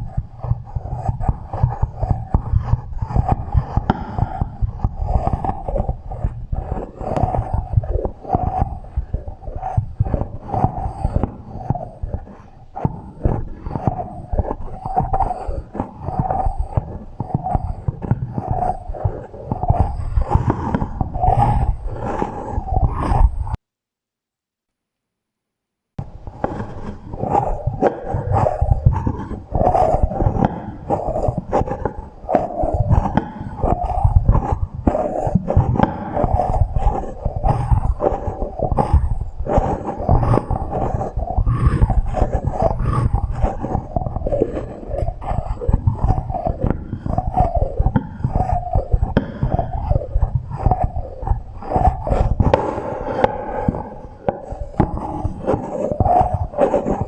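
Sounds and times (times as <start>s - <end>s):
clicks and taps with echo: 0.0s - 23.5s, 26.0s - 57.0s
echoing clicks and taps: 1.7s - 4.6s, 49.1s - 49.5s, 52.2s - 56.2s.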